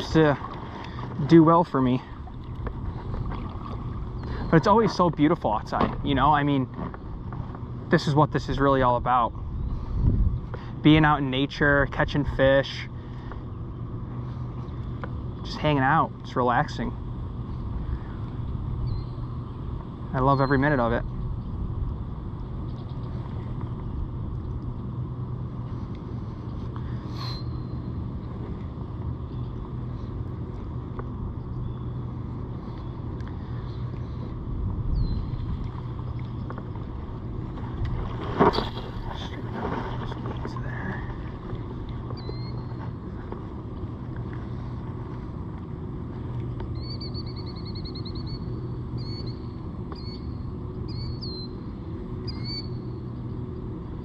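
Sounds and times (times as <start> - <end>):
birds chirping: 0.0 - 7.2, 17.4 - 21.6, 31.3 - 37.6, 40.0 - 43.4, 46.6 - 53.1
faint hum: 0.0 - 54.0
low outdoor rumble: 0.0 - 54.0
bird trill: 18.8 - 19.3, 20.3 - 20.6, 42.2 - 42.7, 46.8 - 51.6, 52.2 - 53.0.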